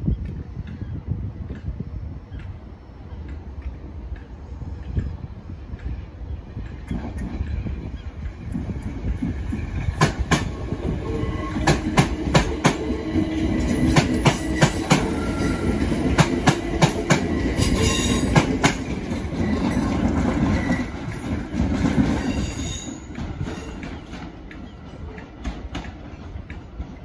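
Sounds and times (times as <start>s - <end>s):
train low hum: 0.0s - 27.0s
wheels clicking over rail joints: 13.6s - 27.0s.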